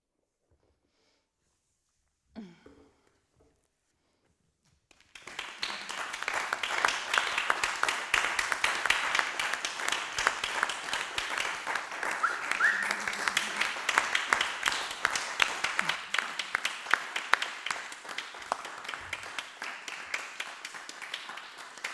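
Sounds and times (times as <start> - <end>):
audience applauding: 4.9 - 21.9.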